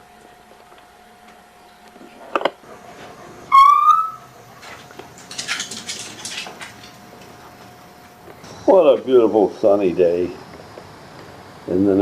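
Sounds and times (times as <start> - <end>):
bird whistled note: 3.5 - 4.3.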